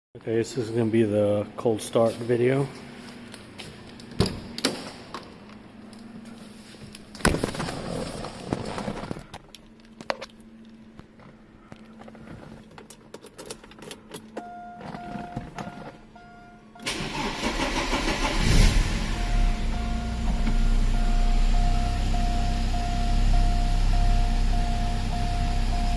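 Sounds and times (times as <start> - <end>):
car engine cranking and starting: 16.8 - 25.9
repeated beeping tone: 19.1 - 25.9.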